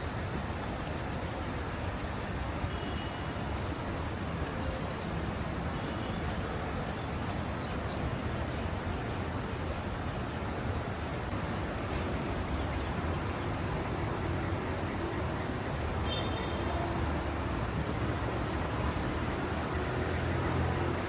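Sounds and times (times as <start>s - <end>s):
low outdoor background noise: 0.0s - 21.0s.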